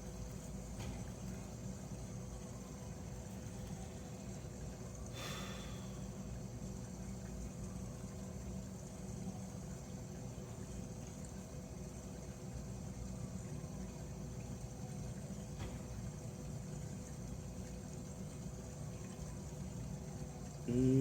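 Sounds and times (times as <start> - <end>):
faint hum: 1.9 - 11.4, 19.0 - 21.0.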